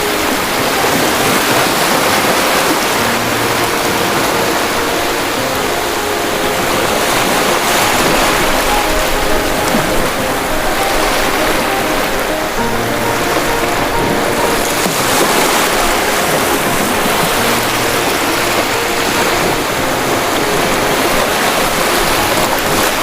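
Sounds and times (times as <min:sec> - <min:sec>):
ocean waves breaking: 0:00.0 - 0:23.0.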